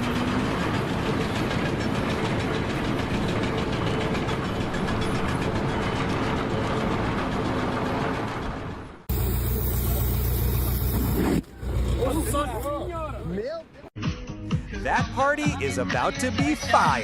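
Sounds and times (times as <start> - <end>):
heavy engine running: 0.0 - 13.3.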